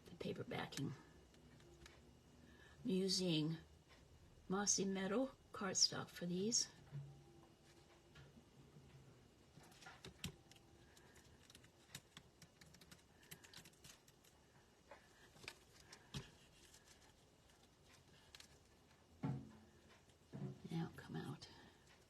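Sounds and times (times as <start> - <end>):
light ticks of cardstock pieces: 9.6 - 19.0.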